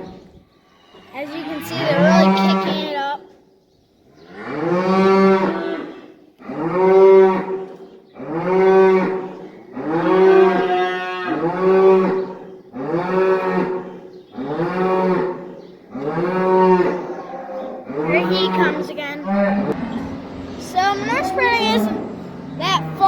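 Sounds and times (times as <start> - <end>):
cattle mooing loudly: 0.9 - 2.9, 4.2 - 23.0.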